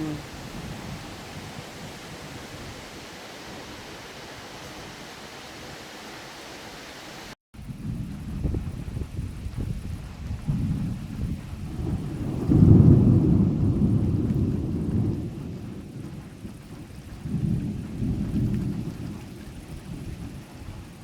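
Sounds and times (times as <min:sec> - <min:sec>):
heavy downpour: 0:00.0 - 0:21.0
thunder rumbling: 0:07.6 - 0:21.0.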